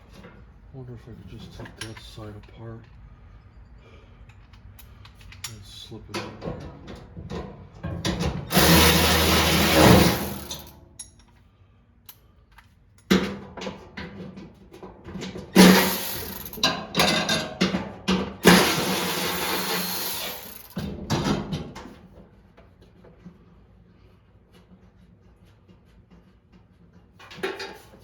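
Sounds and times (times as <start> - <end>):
clicks and knocks of parts: 4.2 - 11.4
power drill running: 8.5 - 10.7, 15.6 - 16.6, 18.4 - 20.8.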